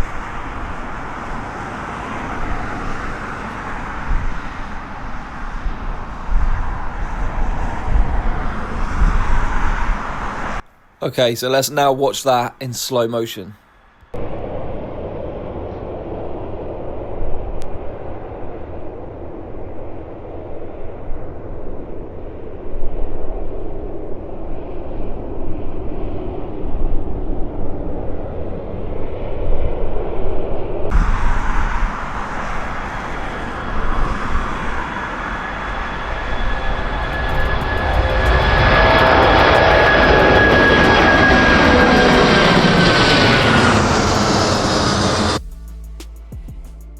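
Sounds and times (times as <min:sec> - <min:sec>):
jet engines at takeoff power: 0:00.0 - 0:10.6, 0:14.1 - 0:45.4
high whining tones: 0:30.9 - 0:46.9.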